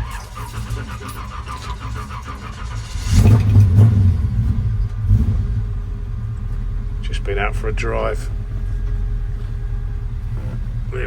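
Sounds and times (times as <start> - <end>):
car engine running and revving: 0.0 - 11.0.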